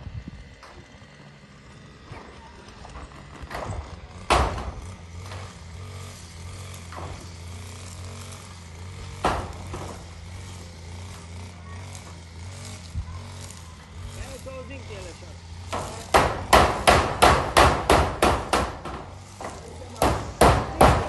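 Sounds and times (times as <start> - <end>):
hammer striking metal roofing: 3.4 - 5.6, 6.8 - 7.6, 9.1 - 10.2, 15.6 - 21.0.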